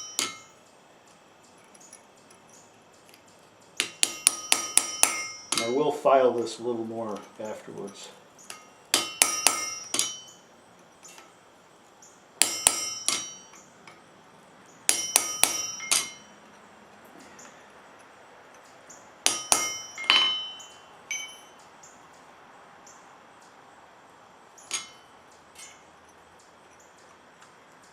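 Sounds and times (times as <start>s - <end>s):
hammer striking iron on anvil: 0.0s - 0.6s, 3.8s - 5.8s, 8.5s - 10.4s, 12.4s - 14.0s, 14.9s - 16.4s, 19.2s - 21.5s, 24.7s - 25.8s.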